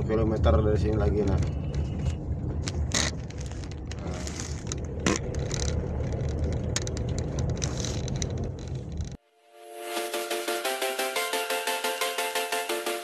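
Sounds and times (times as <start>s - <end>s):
vehicle driving rumble: 0.0s - 9.2s
music: 9.3s - 13.0s.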